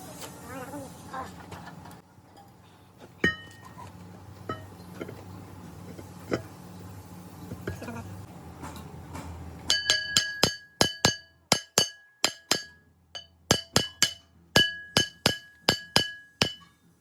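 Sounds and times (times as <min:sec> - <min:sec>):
hammer striking steel: 0:09.7 - 0:16.8.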